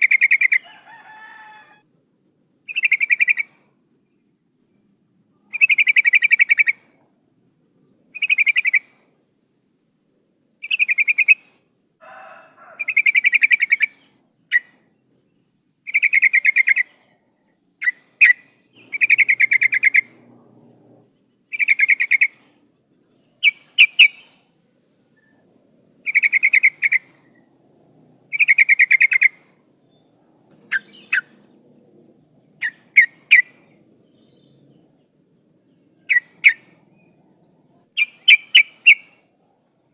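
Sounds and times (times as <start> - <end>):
bird buzzy rattling calls: 17.8 - 22.6.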